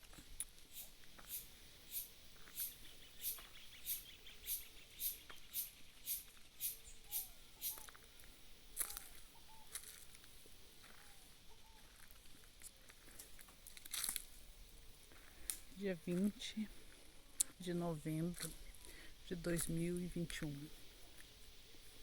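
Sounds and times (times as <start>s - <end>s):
sharp high-pitched animal call: 0.7s - 7.9s.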